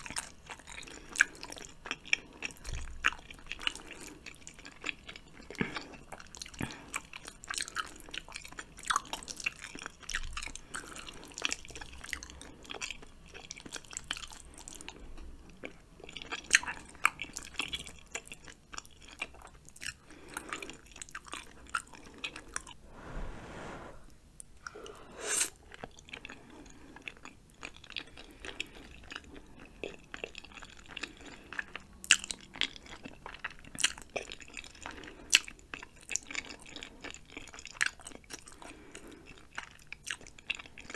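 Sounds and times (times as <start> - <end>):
chewing noodles: 0.0 - 22.8, 25.4 - 40.9.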